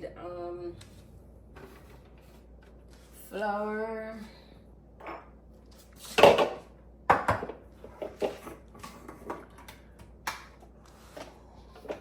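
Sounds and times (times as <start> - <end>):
kitchen containers clattering: 6.1 - 9.8.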